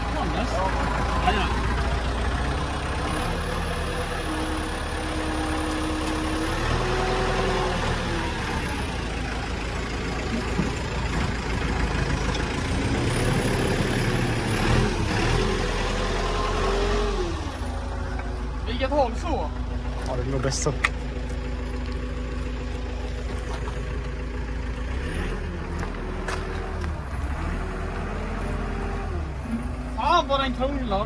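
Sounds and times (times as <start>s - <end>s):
engine running: 0.0s - 31.0s.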